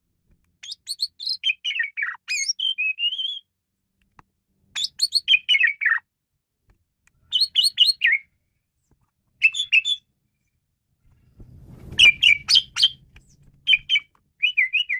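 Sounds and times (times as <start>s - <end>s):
starling whistling song: 0.6s - 3.5s, 4.8s - 6.1s, 7.3s - 8.4s, 9.4s - 10.1s, 11.8s - 14.9s.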